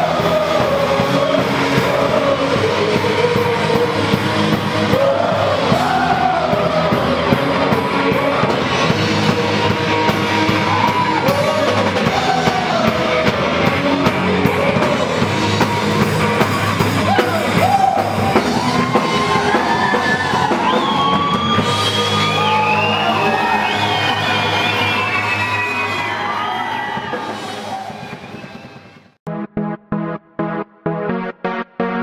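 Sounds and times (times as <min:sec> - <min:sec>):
live gospel music with singing: 0:00.0 - 0:15.7
voices yelling and whooping: 0:17.0 - 0:28.2.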